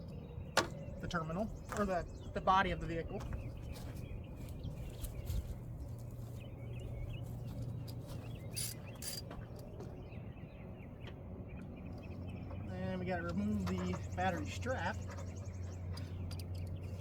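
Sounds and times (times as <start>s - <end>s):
steady low hum: 0.0s - 17.0s
metallic clinks: 7.7s - 9.4s.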